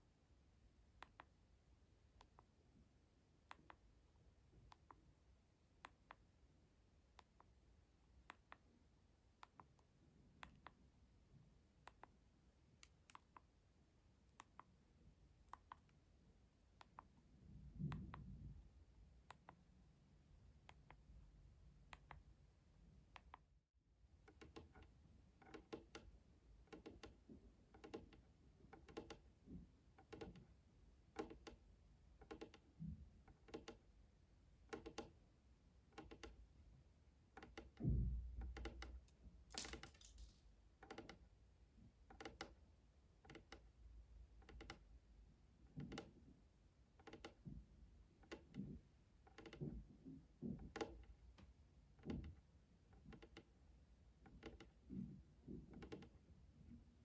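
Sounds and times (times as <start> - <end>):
soft tapping and clicking: 48.2 - 53.5, 54.2 - 56.2.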